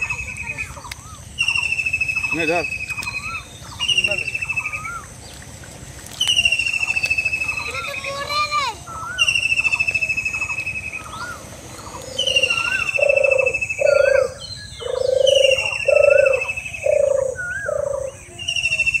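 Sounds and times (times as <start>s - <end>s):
low cooing bird notes: 6.4s - 19.0s
bird high trill: 12.2s - 19.0s.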